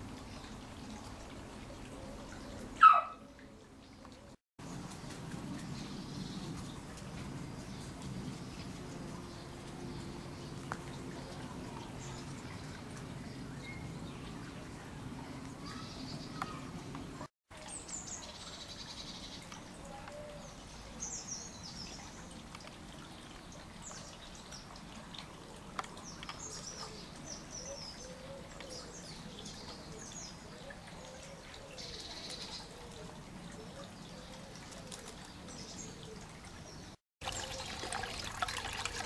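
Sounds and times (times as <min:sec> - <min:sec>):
outdoor background hiss: 0:00.0 - 0:39.0.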